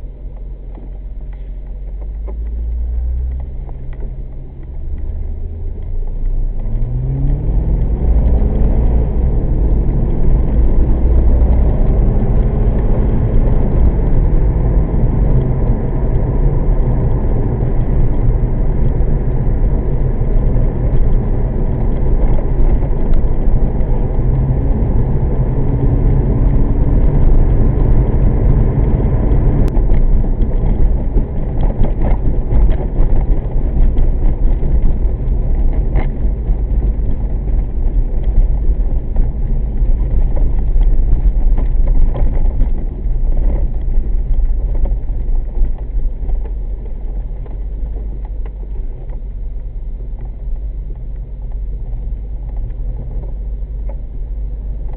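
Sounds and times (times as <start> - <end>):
car engine rumbling: 0.0 - 54.9
road noise: 0.0 - 54.9.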